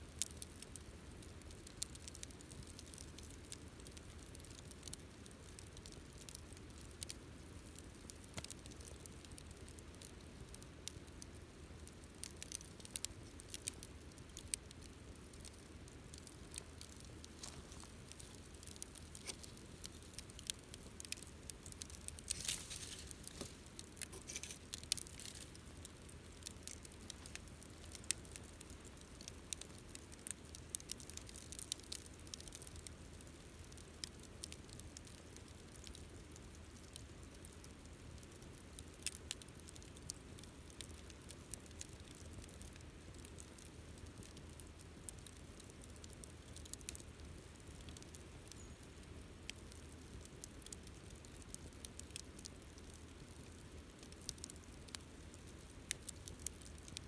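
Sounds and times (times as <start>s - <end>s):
campfire crackling: 0.0s - 57.0s.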